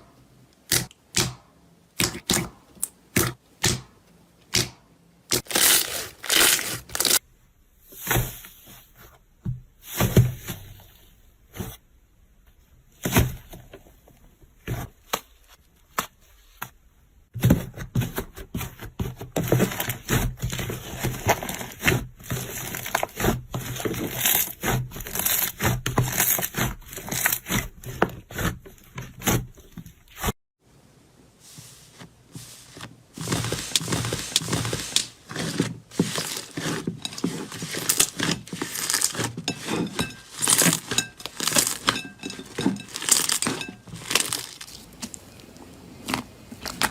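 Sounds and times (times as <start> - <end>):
slime crackling and crunching: 5.3 - 7.2, 19.8 - 28.5, 33.2 - 46.9.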